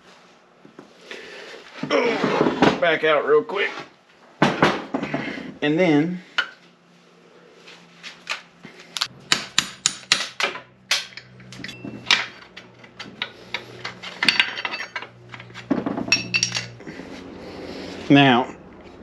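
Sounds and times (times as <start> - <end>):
tools and steel parts knocking: 9.3 - 16.8
sharp metal clinks and taps: 9.8 - 11.8.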